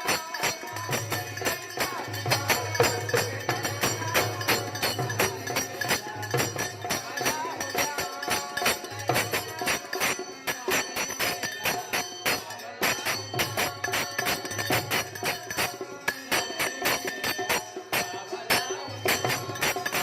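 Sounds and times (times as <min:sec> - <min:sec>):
fast percussion beat: 0:00.0 - 0:20.0.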